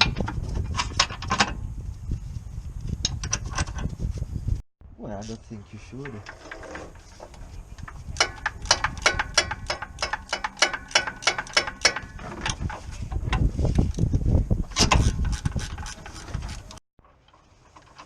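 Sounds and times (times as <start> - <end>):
ratchet wrench clicking: 8.2 - 12.1.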